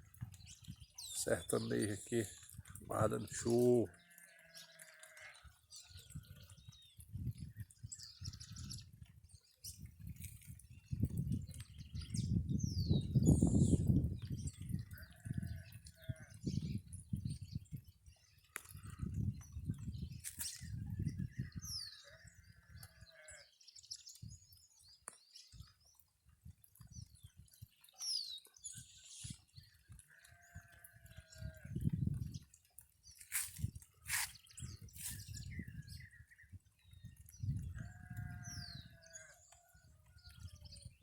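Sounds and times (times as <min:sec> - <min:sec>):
wind rumbling on microphone: 0:00.0 - 0:01.5, 0:05.4 - 0:23.3, 0:25.4 - 0:27.9, 0:28.6 - 0:41.0
small birds chirping: 0:00.0 - 0:41.0
sheep bleating: 0:03.9 - 0:05.4.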